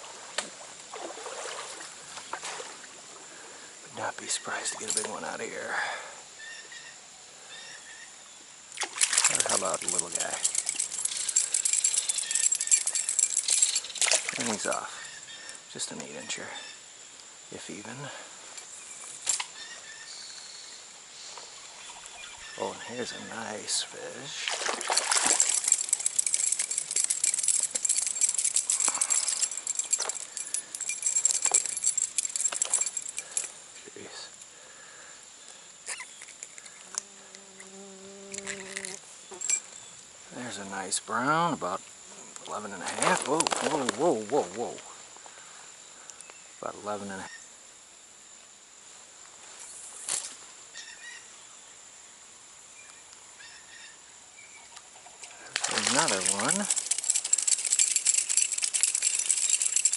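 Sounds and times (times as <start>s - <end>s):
bird calling: 6.4s - 8.2s, 9.3s - 16.8s, 18.8s - 23.7s, 35.8s - 40.0s, 50.8s - 51.3s
fishing reel rattling and clicking: 9.2s - 14.9s, 25.0s - 33.5s, 55.5s - 59.9s.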